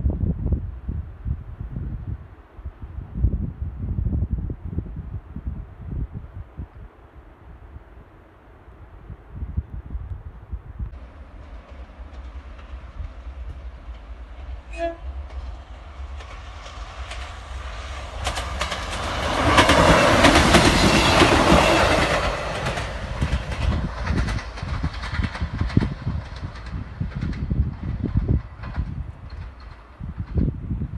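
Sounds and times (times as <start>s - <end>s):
wind buffeting microphone: 0.0s - 30.9s
train engine running: 10.9s - 30.9s
train horn toot: 14.7s - 15.2s.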